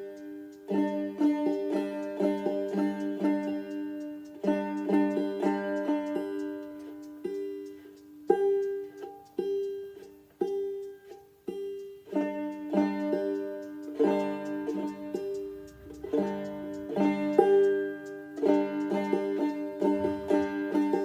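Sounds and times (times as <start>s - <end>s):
banjo picking: 0.0s - 21.0s.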